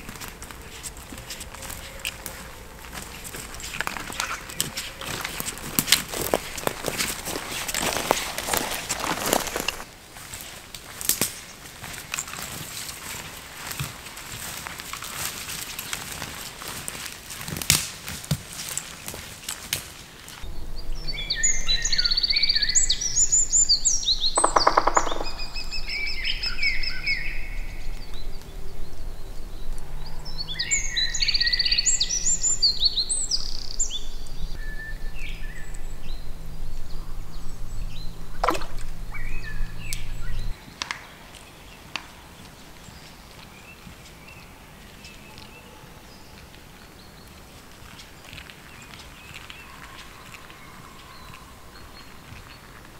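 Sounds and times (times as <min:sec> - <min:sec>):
songbirds singing: 0:00.0 - 0:10.0, 0:20.3 - 0:52.9
low steady hum: 0:20.4 - 0:24.3, 0:32.8 - 0:40.7.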